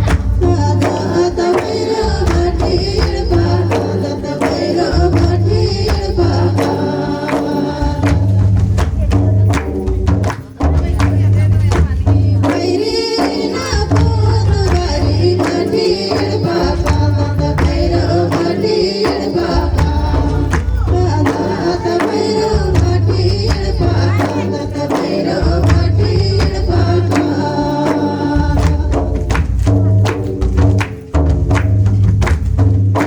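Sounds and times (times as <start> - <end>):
person singing folk song: 0.0 - 30.9
pulsing bass beat: 0.0 - 33.0
steady drum: 0.0 - 33.0.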